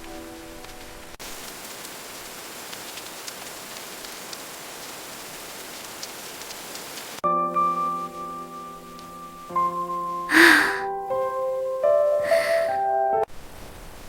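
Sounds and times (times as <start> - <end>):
soft music: 0.0 - 1.2, 7.2 - 13.3
steady rain hiss: 0.0 - 14.0.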